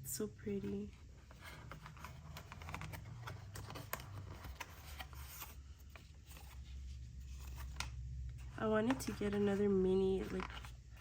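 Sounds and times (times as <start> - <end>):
low room hum: 0.0 - 11.0
handling noise with small clicks: 1.3 - 9.5.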